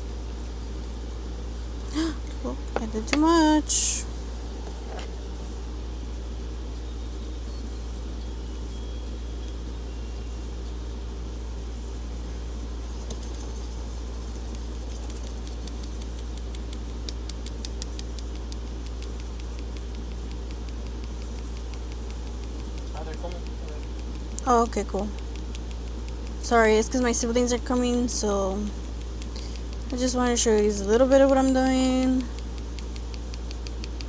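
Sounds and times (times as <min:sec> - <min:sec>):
low mechanical hum: 0:00.0 - 0:34.0
faint rapid ticks: 0:14.3 - 0:34.0.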